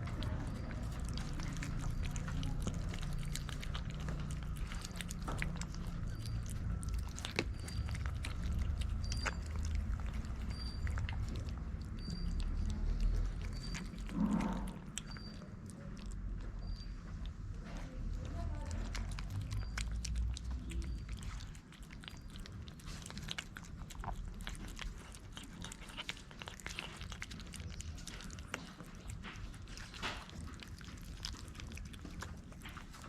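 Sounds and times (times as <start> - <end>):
cats chewing and crunching: 0.0 - 33.0
faint high chirp: 12.0 - 12.7, 16.6 - 17.0.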